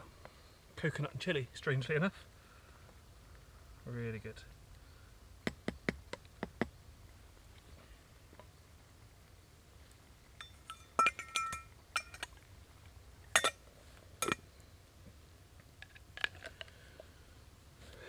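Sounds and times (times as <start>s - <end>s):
utensil striking metal can: 13.4s - 13.6s.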